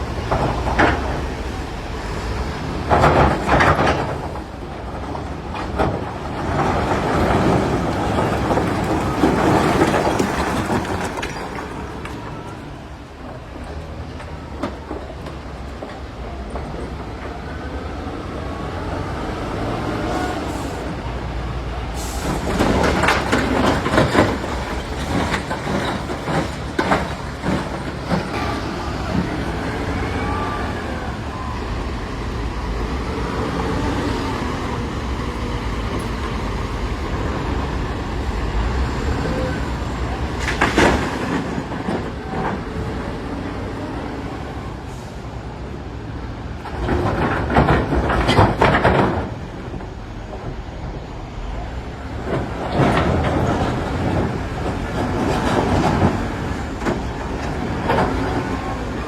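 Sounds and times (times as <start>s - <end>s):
diesel engine revving under load: 17.4s - 45.6s.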